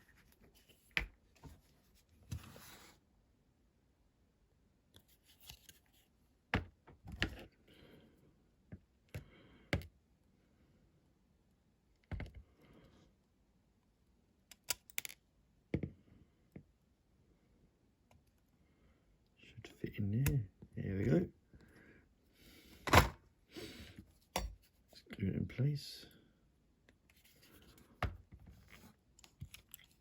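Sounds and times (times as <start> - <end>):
clicks of small parts and tools: 14.5 - 15.2.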